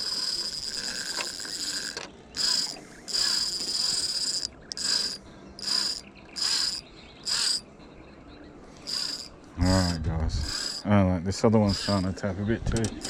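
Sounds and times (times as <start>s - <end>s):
fishing reel drag buzzing: 0.0s - 7.7s, 8.8s - 10.9s, 11.6s - 12.1s.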